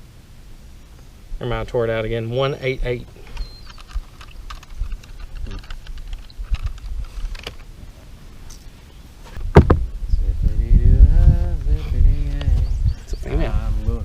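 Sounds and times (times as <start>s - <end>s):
handling clicks and knocks: 3.3s - 7.7s
loud thump: 9.4s - 10.0s
low rumbling: 9.4s - 14.0s.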